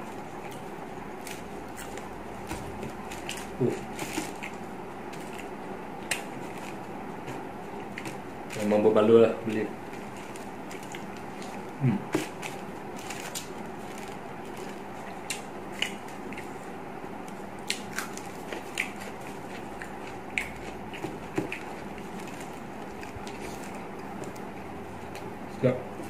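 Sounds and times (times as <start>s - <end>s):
man chewing with crunches: 0.0s - 8.5s, 9.8s - 25.4s
low room hum: 0.0s - 26.0s
short low vocal sound: 11.8s - 12.1s.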